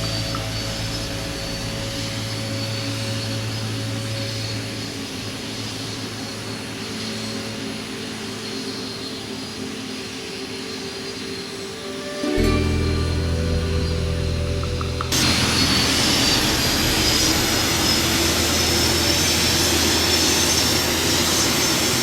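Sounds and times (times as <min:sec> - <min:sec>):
jet engine passing by: 0:15.1 - 0:22.0.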